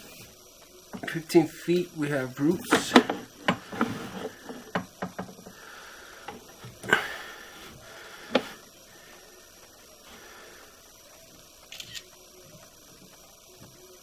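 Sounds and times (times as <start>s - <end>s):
faint steady hiss: 0.0s - 14.0s
knocks and clicks from handling cable: 2.6s - 5.6s.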